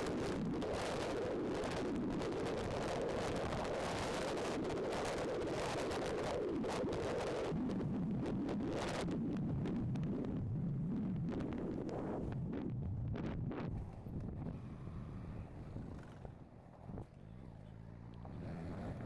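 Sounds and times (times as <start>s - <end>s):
wind buffeting microphone: 0.0s - 17.5s.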